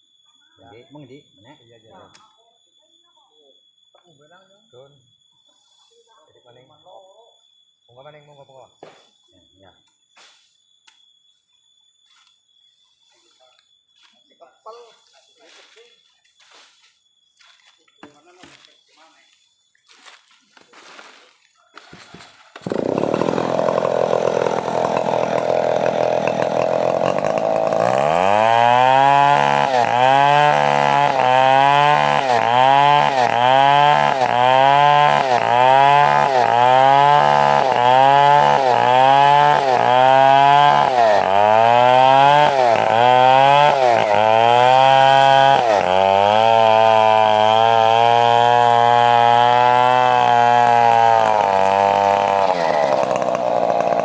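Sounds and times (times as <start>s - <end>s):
chainsaw cutting wood: 21.8s - 54.0s.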